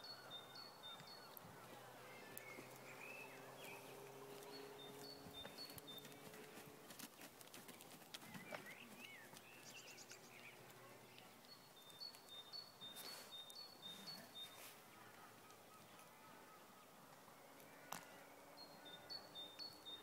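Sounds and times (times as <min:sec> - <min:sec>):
faint birdsong: 0:00.0 - 0:20.0
faint clicks: 0:17.1 - 0:18.2.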